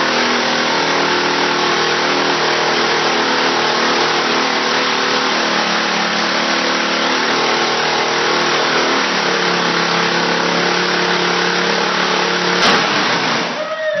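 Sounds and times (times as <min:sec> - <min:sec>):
mini bike engine revving: 0:00.0 - 0:14.0
sharp knock: 0:12.6 - 0:13.2.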